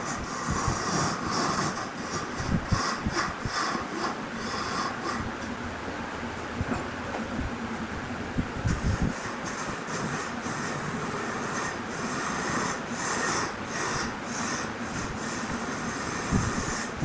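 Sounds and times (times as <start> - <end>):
woodworking machine grinding: 0.0 - 5.4, 9.0 - 17.0.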